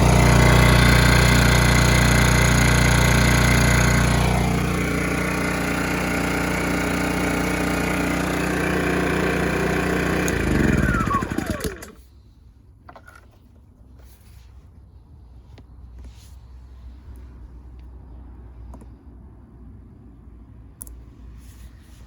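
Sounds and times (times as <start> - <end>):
generator engine running: 0.0 - 12.1.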